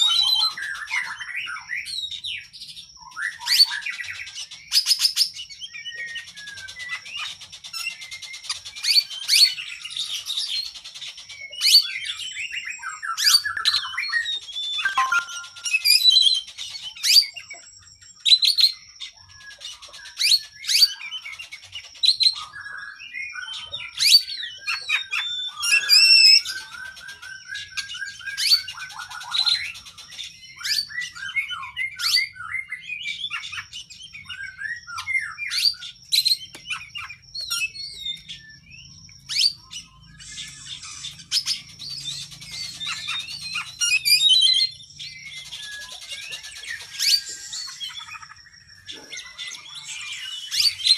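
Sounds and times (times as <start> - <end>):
songbird singing: 0.0 - 50.9
thin steady high tone: 13.5 - 16.3, 35.7 - 50.7.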